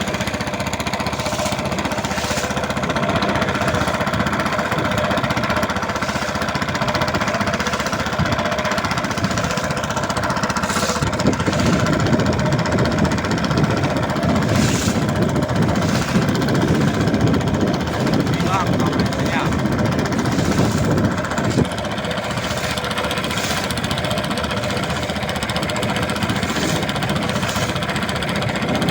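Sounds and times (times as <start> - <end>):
boat engine chugging: 0.0 - 28.9.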